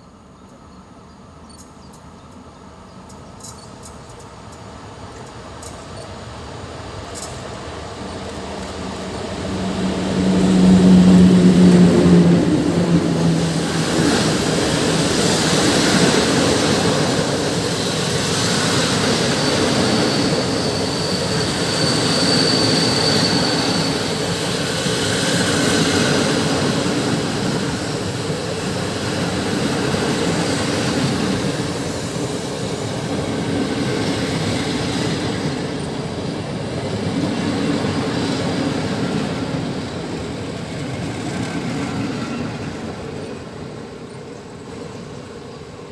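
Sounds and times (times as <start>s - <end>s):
electric locomotive passing hum: 0.0s - 45.9s
train coaches rolling: 0.0s - 45.9s
high wheel squeal: 17.6s - 26.1s.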